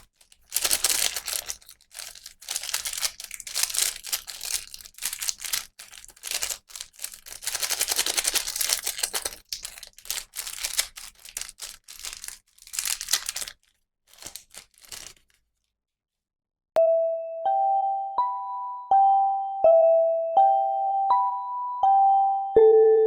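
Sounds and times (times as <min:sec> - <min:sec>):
plastic packaging crinkling: 0:00.0 - 0:15.7
chime melody: 0:16.8 - 0:23.0.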